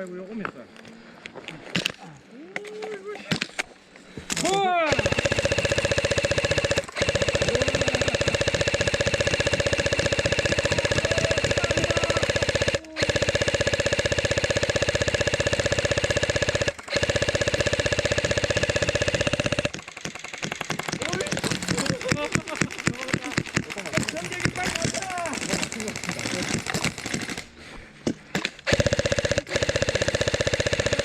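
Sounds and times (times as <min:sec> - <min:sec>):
airsoft gun firing bursts: 0:04.3 - 0:27.6, 0:28.4 - 0:31.0
motor and gearbox whine: 0:05.0 - 0:27.4.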